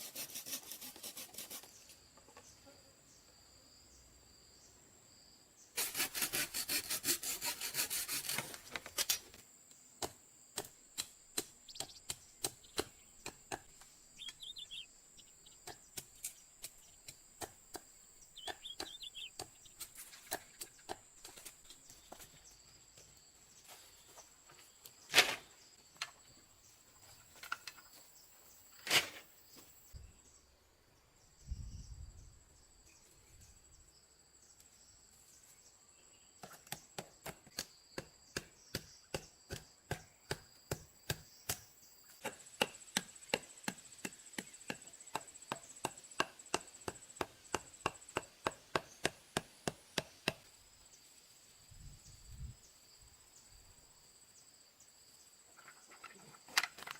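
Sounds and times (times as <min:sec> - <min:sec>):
insects droning: 0:00.2 - 0:56.9
blade chopping into wood: 0:36.4 - 0:50.4.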